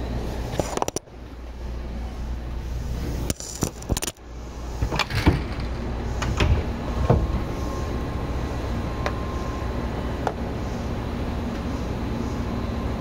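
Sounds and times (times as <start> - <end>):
train rumbling: 0.0 - 13.0
clattering clicks and knocks: 4.8 - 7.3.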